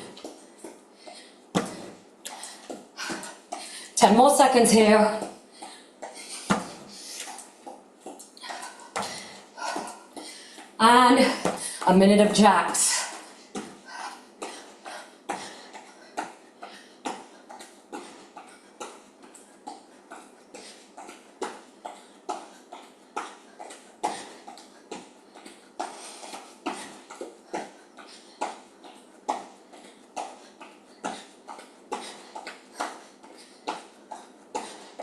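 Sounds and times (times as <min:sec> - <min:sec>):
feet thudding on floor: 0:01.5 - 0:03.6, 0:06.4 - 0:07.0, 0:07.6 - 0:10.3.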